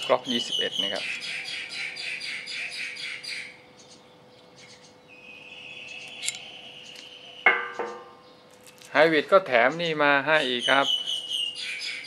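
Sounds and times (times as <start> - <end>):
birds calling: 0.0 - 12.0
bird squawk: 0.3 - 4.0.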